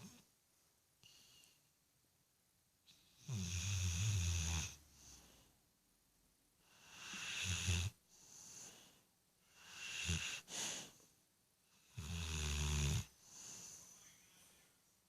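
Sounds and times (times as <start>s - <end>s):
soft breathing: 1.0s - 1.8s, 4.7s - 5.7s, 8.0s - 11.9s, 13.0s - 15.0s
puppy snoring: 2.9s - 5.4s, 6.6s - 8.9s, 9.5s - 10.9s, 11.8s - 13.9s.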